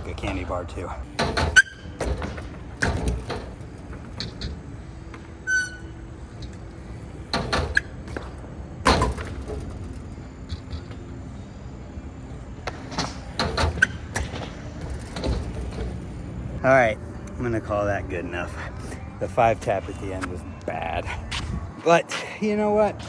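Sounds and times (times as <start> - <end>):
bike knocks and clacks: 0.0 - 6.6, 7.2 - 11.1, 12.6 - 16.6.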